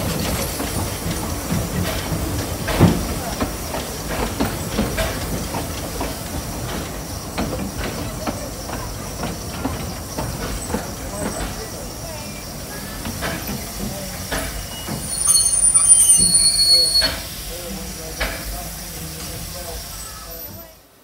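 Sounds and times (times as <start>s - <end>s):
wheels and couplings clicking: 0.0s - 11.7s
train carriages rumbling and hissing: 0.0s - 21.0s.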